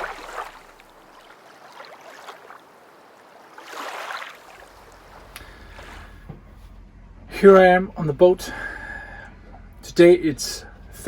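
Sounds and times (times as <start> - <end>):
water lapping in soft swells: 0.0 - 6.6.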